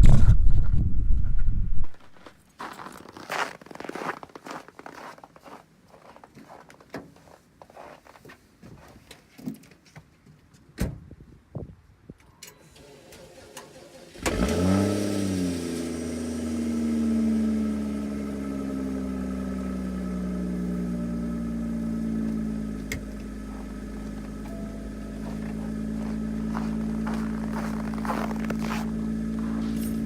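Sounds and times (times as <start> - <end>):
car engine starting and idling: 12.6 - 30.0.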